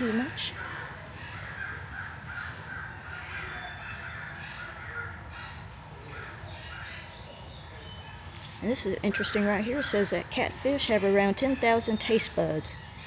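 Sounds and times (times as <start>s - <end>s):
birds cawing: 0.0s - 5.2s.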